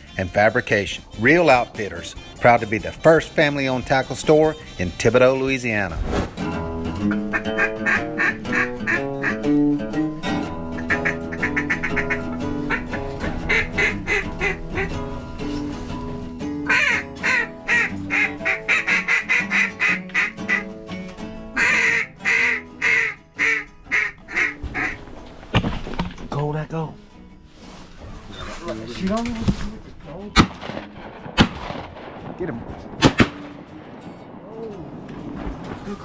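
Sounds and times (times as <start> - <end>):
background music with held notes: 0.0 - 5.9, 6.5 - 29.4
loud duck quacks: 7.3 - 9.5, 10.8 - 14.9, 16.7 - 20.7, 21.6 - 25.0.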